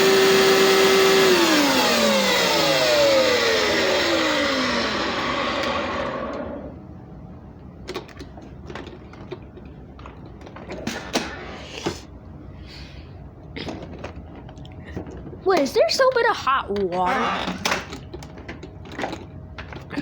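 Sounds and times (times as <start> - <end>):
carpet cleaner motor winding down: 0.0 - 6.8.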